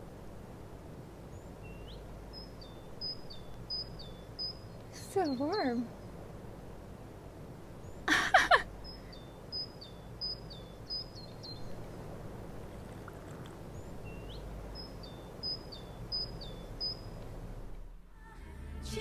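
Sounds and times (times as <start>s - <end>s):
small bird chirping: 1.3s - 6.1s, 8.7s - 12.0s, 12.6s - 17.3s.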